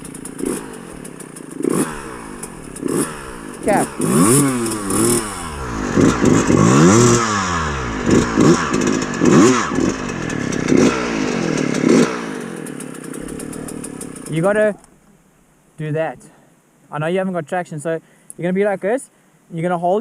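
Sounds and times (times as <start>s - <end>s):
dirt bike engine revving: 0.0s - 14.8s.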